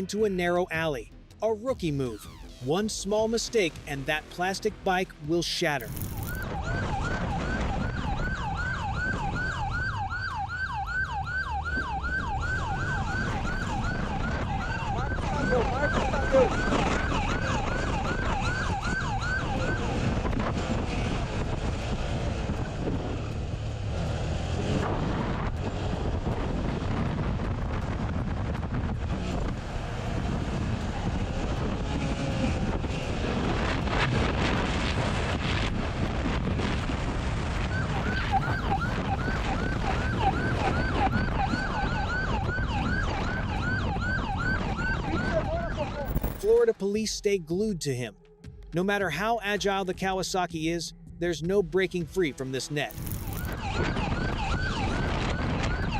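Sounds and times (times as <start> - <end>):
road and vehicle noise: 0.0 - 55.9
police siren yelping: 2.0 - 2.9, 5.8 - 20.4, 37.5 - 46.4, 52.9 - 55.9
wind buffeting microphone: 6.4 - 46.2, 53.4 - 55.9.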